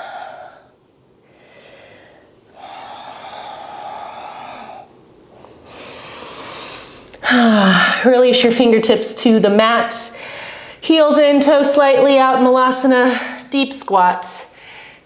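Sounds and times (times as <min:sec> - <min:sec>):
woman breathing deeply: 0:00.0 - 0:08.1, 0:10.1 - 0:10.8, 0:14.5 - 0:15.0.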